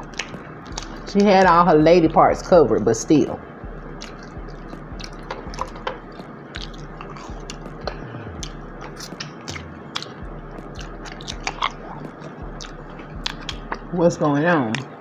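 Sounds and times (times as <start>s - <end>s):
person chewing and biting food: 0.0s - 1.4s, 3.6s - 14.0s
steady low hum: 0.0s - 15.0s.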